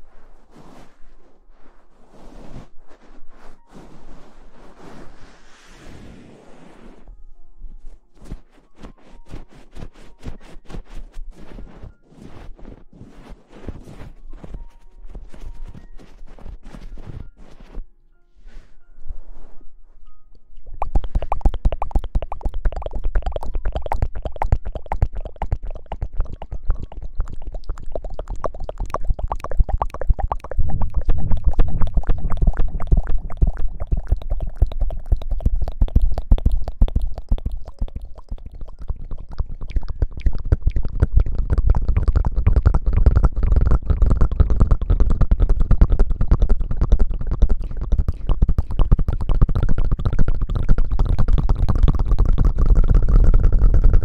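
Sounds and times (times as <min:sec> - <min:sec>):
wet squishing hair washing: 0:20.6 - 0:54.0.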